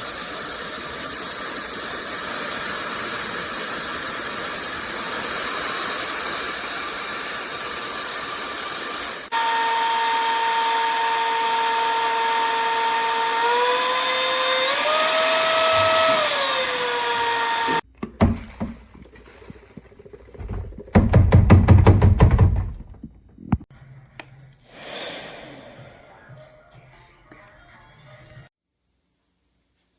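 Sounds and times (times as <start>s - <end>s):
vacuum cleaner motor whine: 0.0s - 17.8s.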